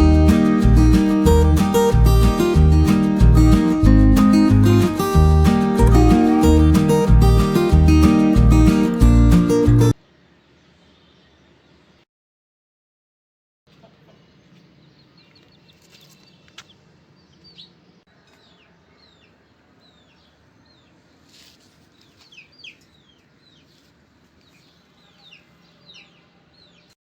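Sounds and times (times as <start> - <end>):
birds chirping faintly: 4.4 - 12.0, 13.7 - 27.0.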